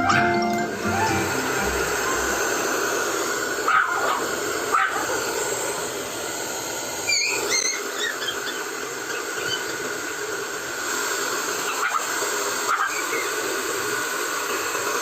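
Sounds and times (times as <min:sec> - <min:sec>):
puppy squeals: 0:07.0 - 0:09.7
puppy whimpering: 0:07.1 - 0:08.7.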